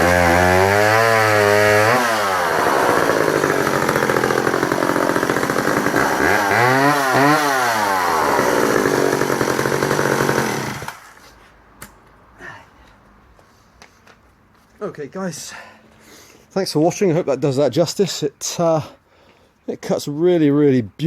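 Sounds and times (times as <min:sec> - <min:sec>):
chainsaw running: 0:00.0 - 0:11.0.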